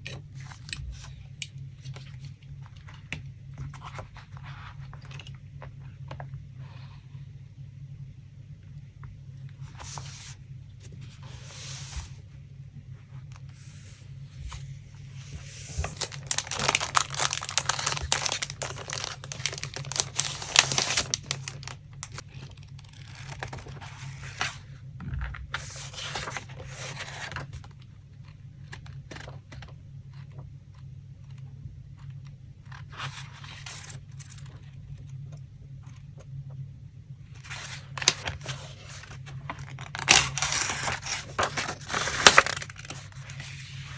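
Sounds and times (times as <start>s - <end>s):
faint low hum: 0.0s - 43.9s
paper rustling and tearing: 15.2s - 24.6s, 37.4s - 43.9s.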